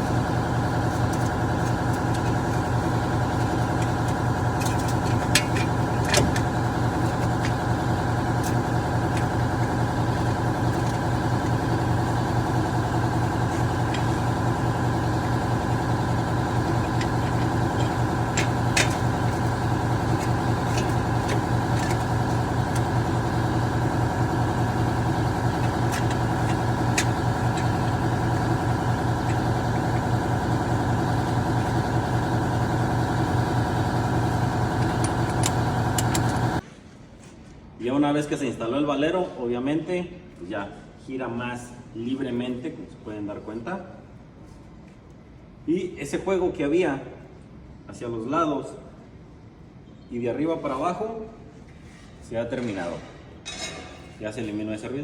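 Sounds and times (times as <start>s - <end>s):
engine idling: 0.0s - 36.6s.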